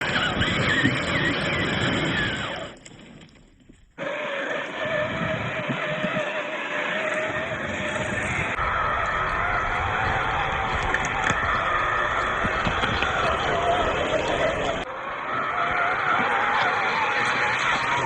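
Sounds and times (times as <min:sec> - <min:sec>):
toy car motor whining: 0:00.0 - 0:02.8, 0:04.0 - 0:18.0
tyres rumbling on rough ground: 0:00.0 - 0:18.0.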